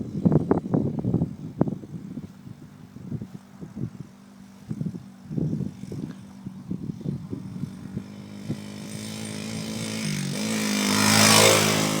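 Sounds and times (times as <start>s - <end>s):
dirt bike engine: 3.0s - 12.0s.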